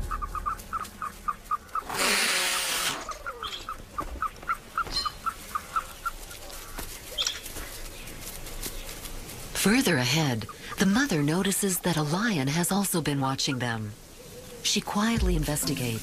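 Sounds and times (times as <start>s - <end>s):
bird chirping: 0.0s - 2.0s.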